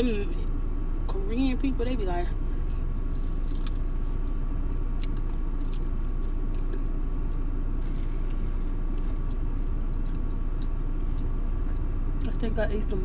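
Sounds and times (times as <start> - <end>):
low rumble inside car: 0.0 - 13.0
person chewing chicken wing: 3.1 - 12.0.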